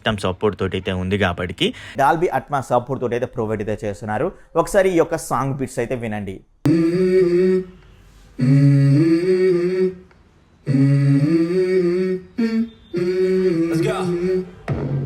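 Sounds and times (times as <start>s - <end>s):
person singing long held notes: 6.7s - 14.7s
song through tv speakers: 6.7s - 15.0s.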